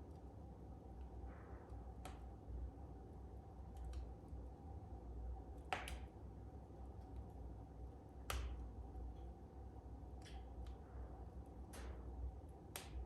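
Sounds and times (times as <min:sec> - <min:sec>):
wood fire crackling and popping: 0:11.5 - 0:13.0.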